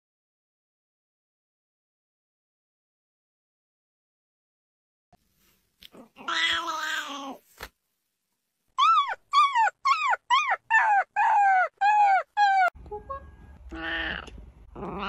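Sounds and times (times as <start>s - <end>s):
cat crying: 8.8s - 12.8s
puppy yelping: 8.8s - 12.8s.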